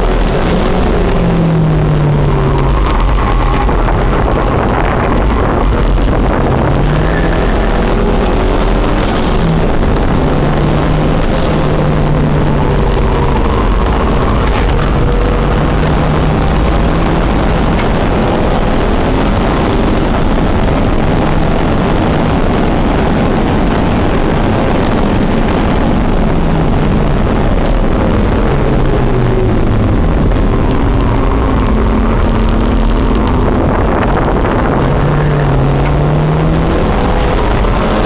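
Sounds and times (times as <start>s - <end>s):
car engine running hard: 0.0s - 38.0s
road and wind noise: 0.0s - 38.0s.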